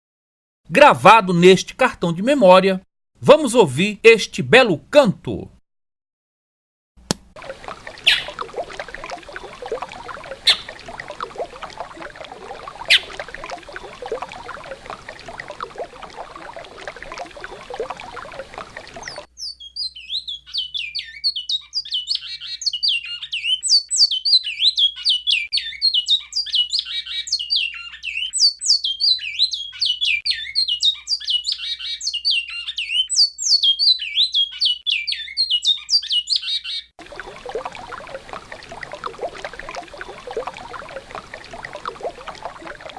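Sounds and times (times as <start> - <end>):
river water running: 7.4 - 19.3, 37.0 - 42.9
finch singing fast high notes: 8.1 - 8.4, 10.5 - 10.7, 12.9 - 13.2.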